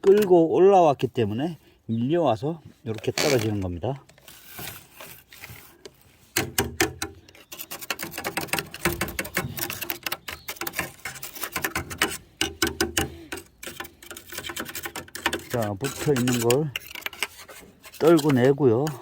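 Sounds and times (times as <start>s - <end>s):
metal flue pipe tapping and rattling: 5.8s - 19.0s.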